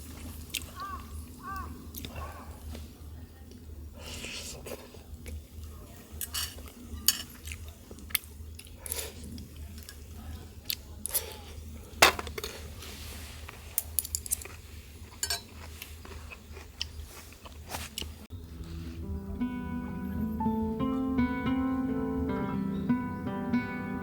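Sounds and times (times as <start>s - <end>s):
cookware clinking and clicking: 6.2s - 7.4s, 15.2s - 15.6s.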